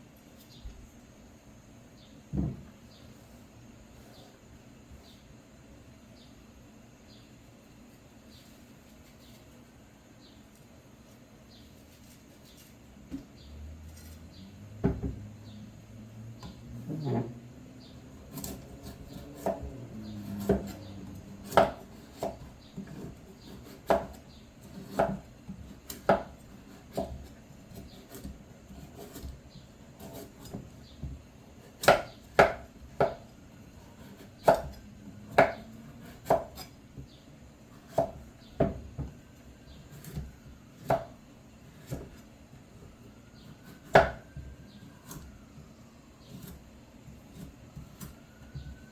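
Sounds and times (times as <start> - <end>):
knife chopping on cutting board: 14.7 - 15.3, 18.2 - 29.4, 30.0 - 33.3, 34.0 - 36.7, 37.8 - 39.1, 39.9 - 42.2, 43.6 - 44.4, 46.2 - 48.7.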